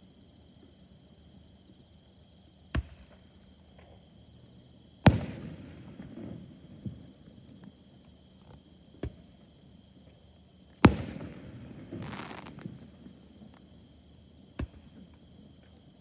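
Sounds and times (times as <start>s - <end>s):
fireworks bangs: 5.1s - 7.2s, 10.9s - 13.2s.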